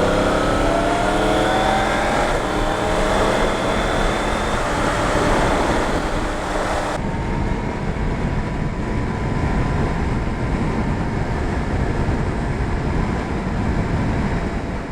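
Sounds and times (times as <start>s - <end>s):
motorcycle engine running: 0.0s - 7.0s
wind rushing over microphone: 0.0s - 14.9s.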